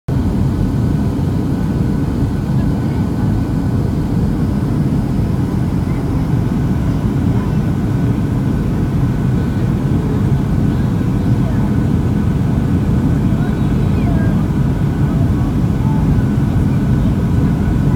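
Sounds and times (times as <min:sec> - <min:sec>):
airplane cabin rumble: 0:00.1 - 0:17.9
faint steady whines: 0:00.2 - 0:17.9.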